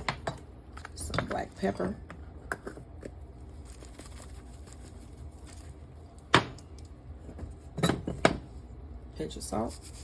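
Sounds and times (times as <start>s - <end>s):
kitchen handling noises: 6.3s - 8.6s.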